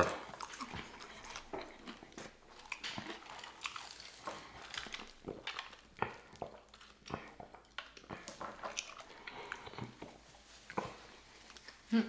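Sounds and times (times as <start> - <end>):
mouth smacking: 0.0 - 12.0
people chewing fried chicken: 0.0 - 12.0.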